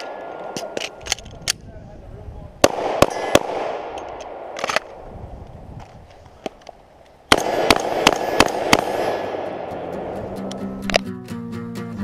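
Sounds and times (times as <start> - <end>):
rifle shots with echo: 2.6 - 5.0, 7.3 - 10.2.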